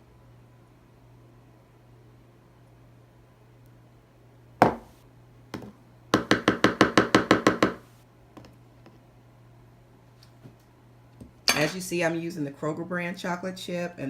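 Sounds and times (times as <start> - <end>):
spoon knocking on container: 4.6 - 4.9, 5.6 - 7.8.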